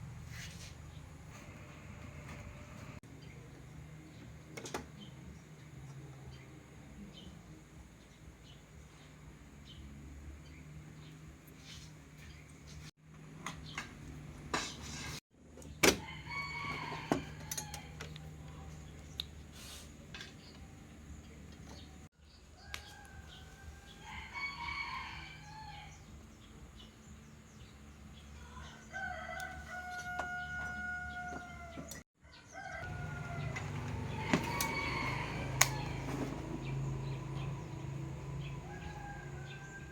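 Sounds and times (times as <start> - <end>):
rooster crowing: 16.0 - 18.0, 22.6 - 26.0, 28.6 - 37.6, 38.3 - 39.9.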